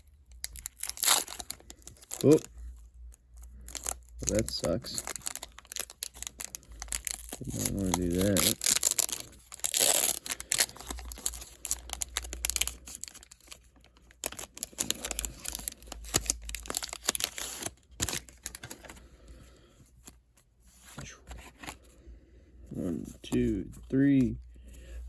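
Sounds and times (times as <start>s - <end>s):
foil wrapper crinkling and tearing: 0.2s - 18.9s.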